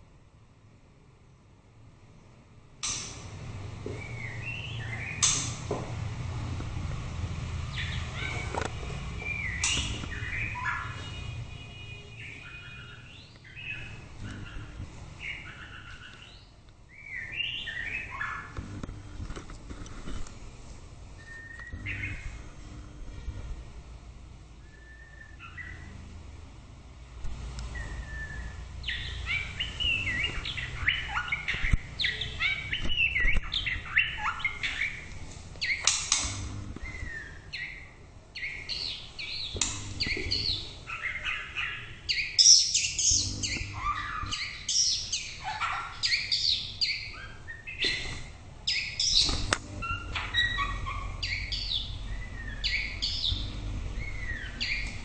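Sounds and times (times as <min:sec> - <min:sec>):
bird singing whistled phrases: 0:21.2 - 0:22.2, 0:24.6 - 0:25.9, 0:27.8 - 0:35.0, 0:36.8 - 0:37.8.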